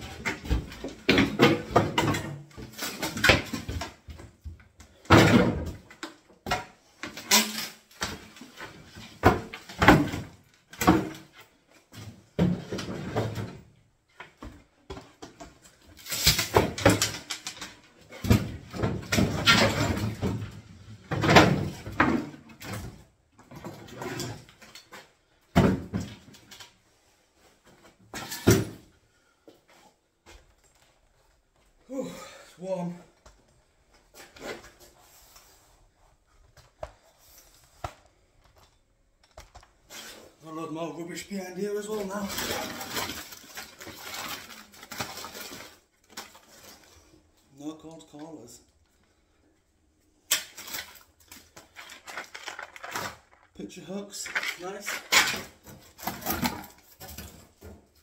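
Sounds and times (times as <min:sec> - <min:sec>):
wooden units banging and scraping: 0:00.0 - 0:26.8, 0:39.3 - 0:47.1, 0:50.5 - 0:58.0.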